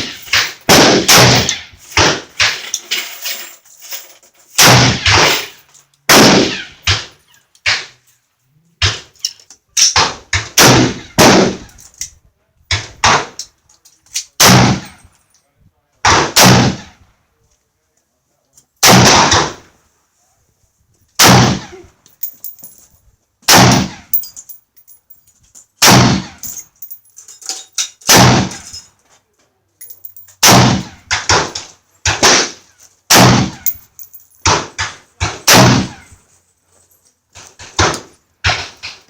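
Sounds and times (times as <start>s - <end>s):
rifle shots: 0.0s - 2.6s, 4.6s - 5.5s, 6.1s - 7.1s, 9.9s - 11.6s, 14.4s - 14.9s, 16.1s - 17.0s, 18.8s - 19.6s, 21.2s - 21.8s, 23.5s - 24.2s, 25.8s - 26.4s, 28.1s - 28.6s, 30.4s - 33.8s, 34.4s - 36.0s.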